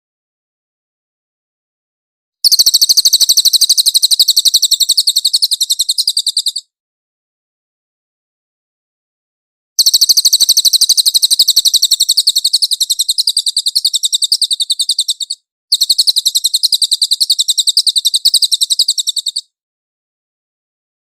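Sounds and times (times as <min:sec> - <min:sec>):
bird singing rapid trills: 0:02.4 - 0:06.7, 0:09.8 - 0:19.5.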